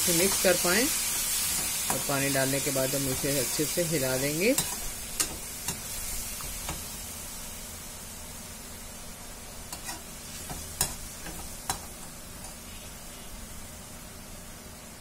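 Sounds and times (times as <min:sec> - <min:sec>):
food sizzling in a pan: 0:00.0 - 0:15.0
metal spoon scraping a pan: 0:04.5 - 0:05.9, 0:09.7 - 0:13.3.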